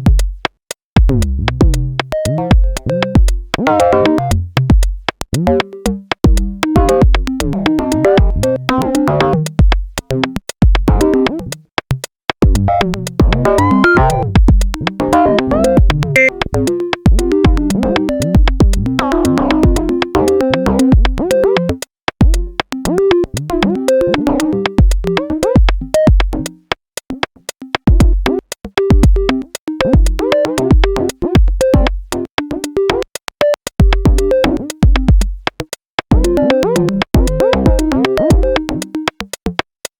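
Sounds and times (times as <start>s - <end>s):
kick drum thumps: 0.0s - 3.6s, 4.5s - 5.2s, 6.2s - 7.4s, 8.2s - 8.5s, 9.6s - 10.0s, 10.6s - 11.2s, 12.4s - 14.8s, 15.7s - 16.1s, 17.1s - 17.8s, 18.4s - 20.0s, 20.9s - 21.2s, 22.2s - 22.7s, 24.8s - 26.4s, 27.9s - 32.2s, 33.8s - 36.5s, 37.2s - 38.7s
rapid clicking percussion: 0.0s - 39.9s
stepping synth notes: 1.1s - 4.7s, 5.3s - 11.6s, 12.4s - 39.6s.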